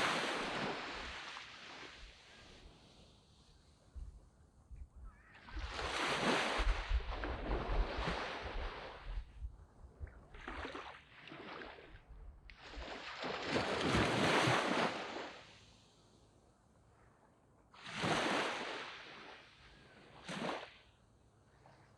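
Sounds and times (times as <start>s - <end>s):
sea waves breaking on beach: 0.0s - 3.5s, 5.3s - 9.3s, 10.3s - 15.9s, 17.8s - 20.9s.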